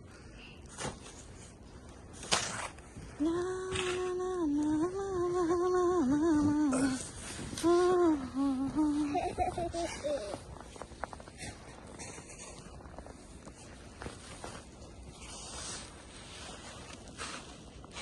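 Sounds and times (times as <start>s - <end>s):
person humming a tune: 3.2s - 10.4s.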